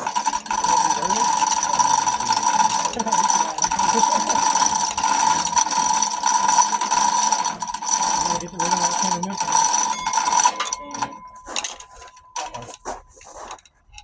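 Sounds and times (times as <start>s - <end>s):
ratchet tool clicking rapidly: 0.0s - 13.5s.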